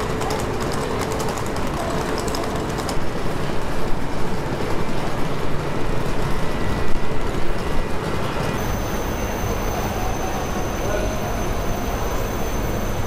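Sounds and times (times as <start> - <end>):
faint rapid clicking: 0.0 - 3.1
passenger train running on rails: 0.0 - 13.0.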